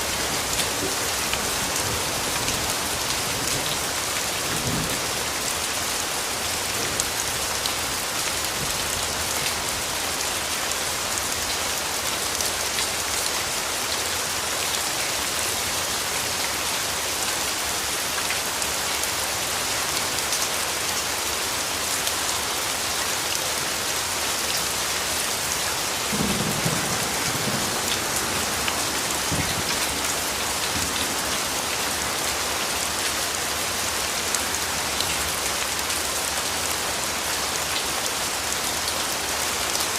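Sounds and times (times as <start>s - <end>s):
steady rainfall: 0.0s - 39.9s
distant thunder rumbles: 25.9s - 31.4s.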